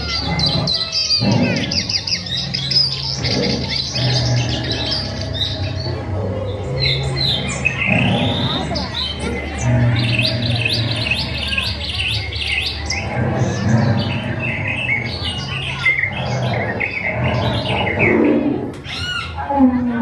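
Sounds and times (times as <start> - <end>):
chorus of chirping bird calls: 0.0 - 20.0.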